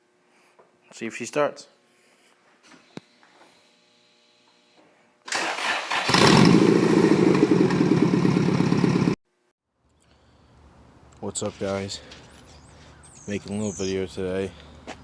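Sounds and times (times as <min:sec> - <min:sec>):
starter motor cranking: 0:05.3 - 0:08.0.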